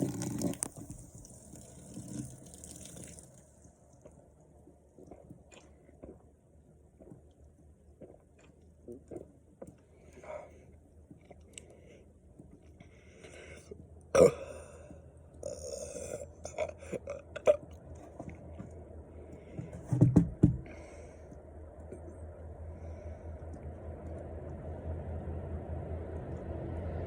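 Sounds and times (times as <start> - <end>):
man burping: 14.1 - 14.8, 15.4 - 17.7.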